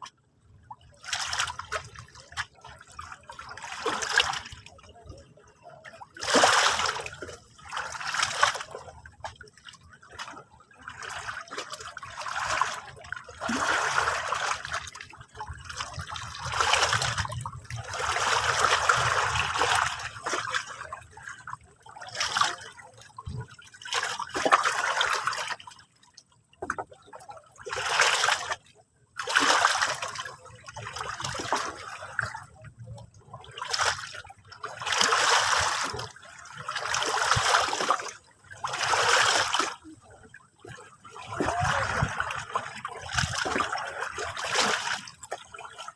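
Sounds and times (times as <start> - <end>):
sea water splashing on shore: 6.1 - 8.8, 10.9 - 20.9, 33.6 - 40.0, 40.6 - 45.8.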